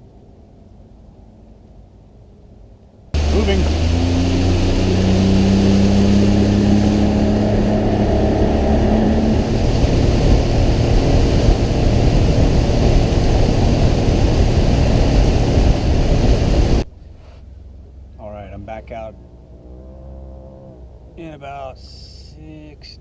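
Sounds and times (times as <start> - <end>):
wind: 0.0 - 23.0
rushing water: 3.2 - 16.8
motorboat engine running: 3.2 - 18.1.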